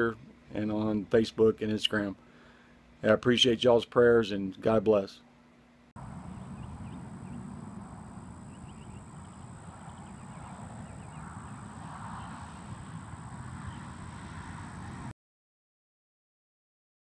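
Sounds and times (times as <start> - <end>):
steady low rumble: 6.0 - 15.1.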